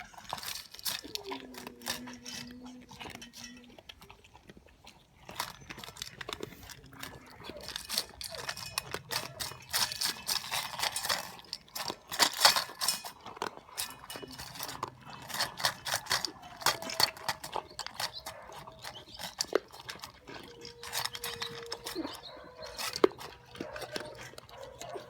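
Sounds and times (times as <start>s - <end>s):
puppy whining: 0.0s - 3.8s, 6.5s - 11.2s, 13.9s - 25.0s
puppy crunching food: 0.0s - 25.0s
clinks against bowl: 7.6s - 17.3s.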